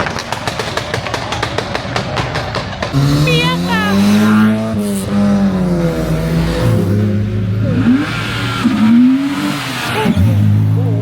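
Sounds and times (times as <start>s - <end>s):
car engine revving: 2.5s - 11.0s.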